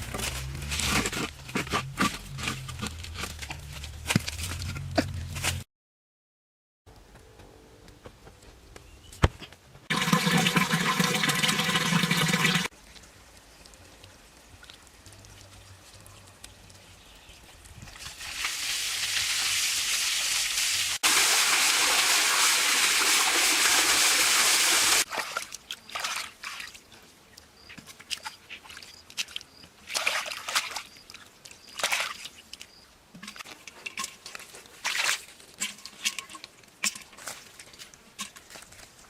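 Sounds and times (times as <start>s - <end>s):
water rushing: 9.9s - 12.7s
water sloshing and splashing: 9.9s - 13.2s, 25.0s - 27.0s, 27.9s - 39.0s.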